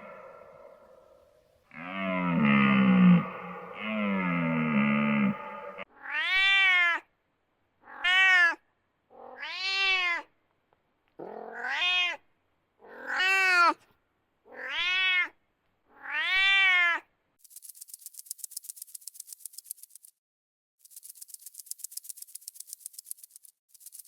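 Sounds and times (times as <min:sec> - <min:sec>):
cat meowing: 0:05.9 - 0:07.1, 0:07.8 - 0:08.6, 0:09.2 - 0:10.3, 0:11.2 - 0:12.2, 0:12.8 - 0:13.8, 0:14.5 - 0:15.4, 0:16.0 - 0:17.1.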